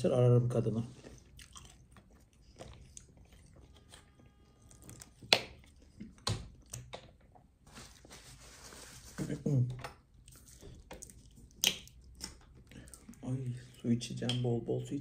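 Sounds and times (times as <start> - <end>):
chewing and mouth sounds: 0.9 - 7.0, 10.2 - 13.2.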